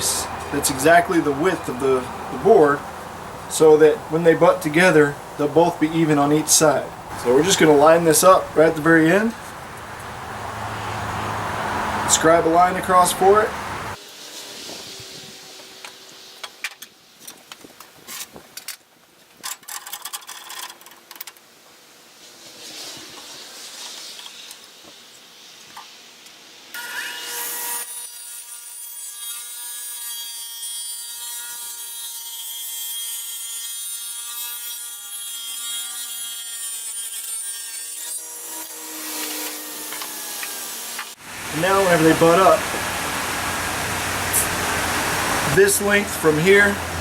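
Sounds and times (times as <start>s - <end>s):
saw cutting wood: 0.0s - 2.8s, 3.5s - 16.8s, 26.7s - 47.0s.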